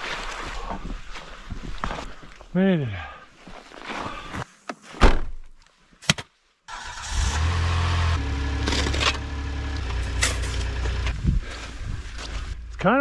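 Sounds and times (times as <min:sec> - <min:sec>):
car engine starting and idling: 0:06.7 - 0:12.7.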